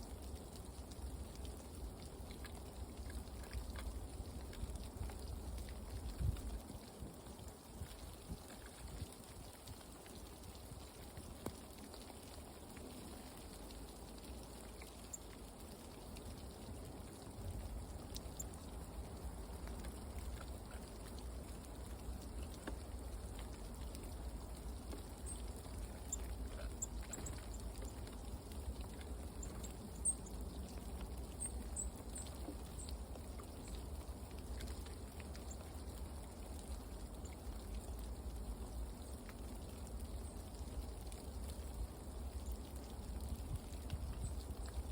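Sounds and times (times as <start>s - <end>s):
faint ticks: 0.1s - 44.9s
small birds chirping: 24.8s - 33.8s.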